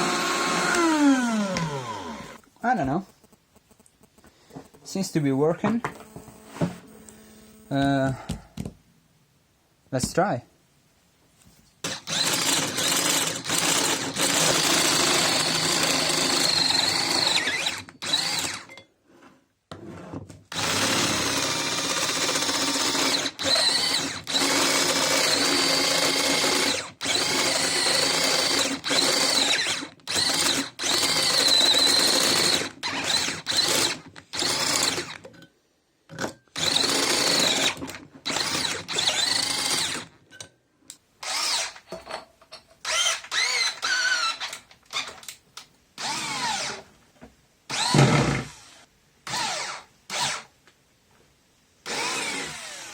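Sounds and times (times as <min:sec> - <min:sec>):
cordless drill motor whining: 0:00.0 - 0:02.4, 0:05.8 - 0:07.8, 0:11.9 - 0:18.7, 0:20.5 - 0:35.2, 0:36.6 - 0:40.1, 0:41.2 - 0:41.8, 0:42.8 - 0:45.2, 0:46.0 - 0:46.8, 0:47.7 - 0:50.4, 0:51.9 - 0:52.9.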